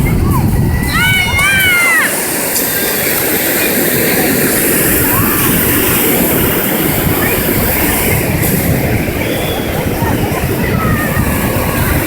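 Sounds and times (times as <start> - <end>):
ocean surf: 0.0 - 12.0
wind on microphone: 0.0 - 12.0.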